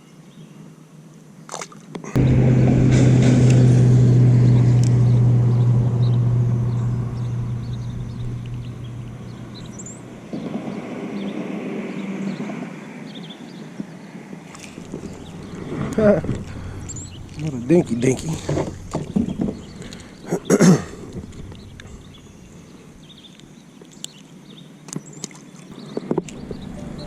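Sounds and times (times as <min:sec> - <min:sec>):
boat motor humming: 0:02.2 - 0:11.9, 0:14.6 - 0:23.1.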